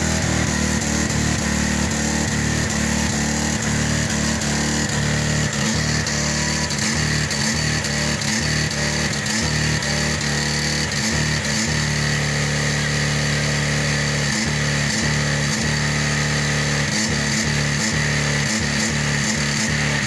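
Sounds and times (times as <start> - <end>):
truck engine running hard: 0.0 - 20.0.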